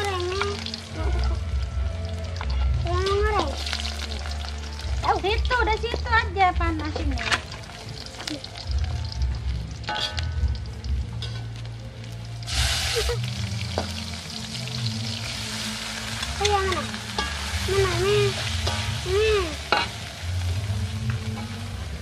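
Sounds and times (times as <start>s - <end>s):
fish sizzling in a wok: 0.0s - 22.0s
metal spatula stirring: 9.9s - 10.4s, 11.2s - 11.5s, 16.2s - 20.1s.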